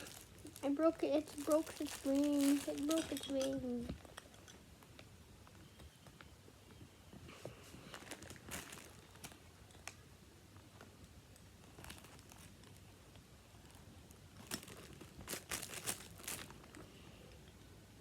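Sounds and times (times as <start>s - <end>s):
packaging crinkling: 0.0s - 4.3s, 7.8s - 10.0s, 10.7s - 13.0s, 13.6s - 16.9s.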